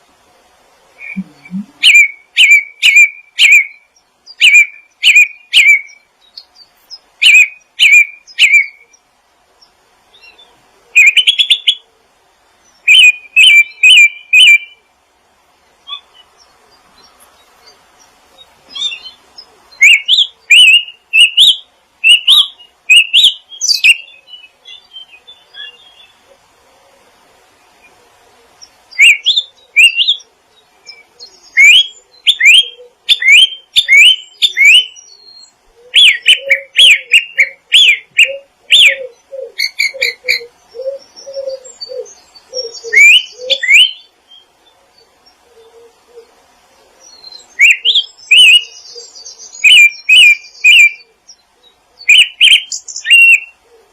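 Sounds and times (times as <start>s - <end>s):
songbirds chirping: 0.0s - 53.9s
lower repeated bird note: 1.0s - 2.1s.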